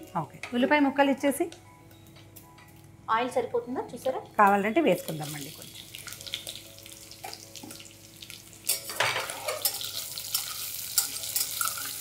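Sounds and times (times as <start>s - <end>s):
onions sizzling in oil: 4.4s - 12.0s.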